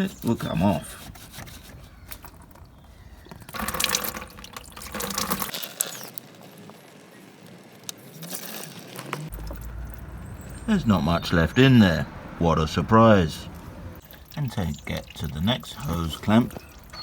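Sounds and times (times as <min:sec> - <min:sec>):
coolant splashing into a bucket: 0:03.3 - 0:06.2.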